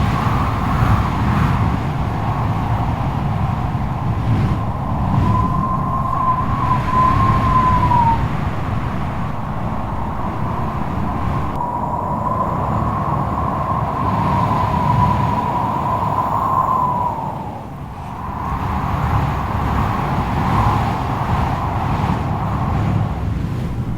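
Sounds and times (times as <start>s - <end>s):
wind gusts rumbling: 0.0s - 23.9s
wind howling whistle: 0.0s - 23.9s.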